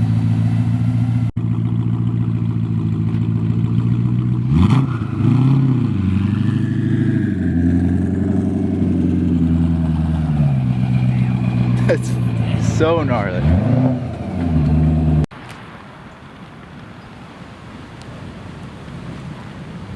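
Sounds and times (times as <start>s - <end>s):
car engine idling and revving: 0.0s - 15.3s.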